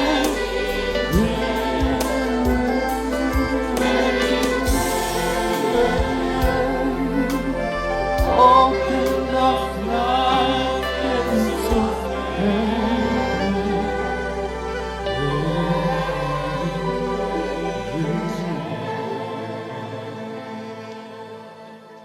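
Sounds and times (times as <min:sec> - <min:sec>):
choir singing sustained notes: 0:00.0 - 0:22.0
orchestral backing: 0:00.0 - 0:22.0.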